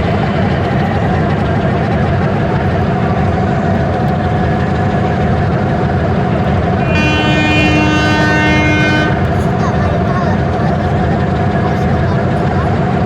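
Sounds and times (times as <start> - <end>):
train engine rumble: 0.0 - 13.0
train horn: 6.7 - 9.4.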